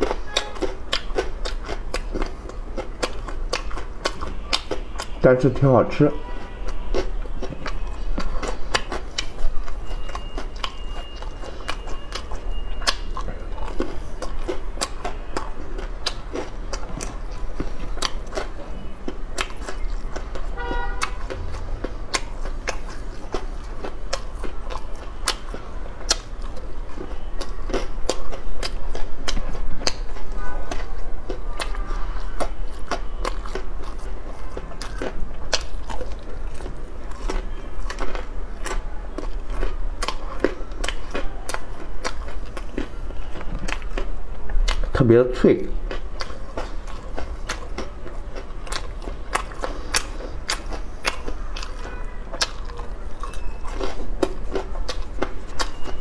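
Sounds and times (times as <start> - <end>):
crunching crispy snack: 45.8 - 56.0.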